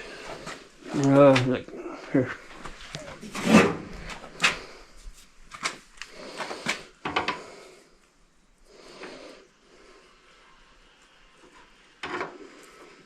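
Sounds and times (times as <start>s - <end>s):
soft rustle: 0.0s - 6.9s.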